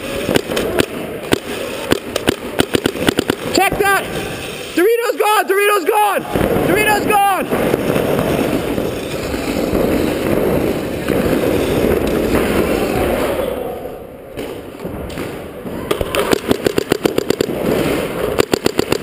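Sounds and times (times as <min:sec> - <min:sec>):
paintball marker firing rapidly: 0:00.0 - 0:04.8, 0:15.9 - 0:19.0.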